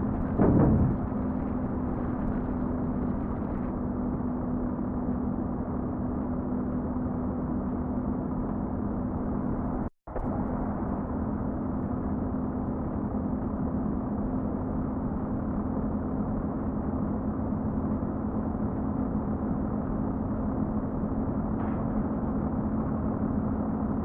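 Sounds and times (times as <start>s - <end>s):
truck engine droning: 0.0s - 3.8s
low hum: 0.0s - 24.0s.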